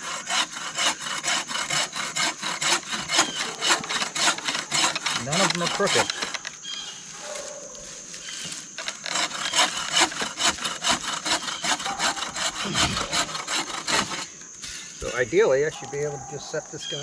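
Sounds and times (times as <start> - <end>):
hand saw cutting wood: 0.0 - 6.7, 8.4 - 14.9.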